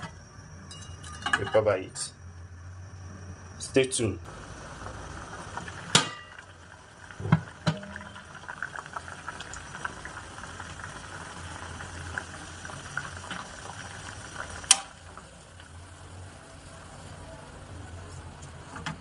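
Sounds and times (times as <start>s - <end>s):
pot boiling with bubbling pops: 4.3s - 19.0s.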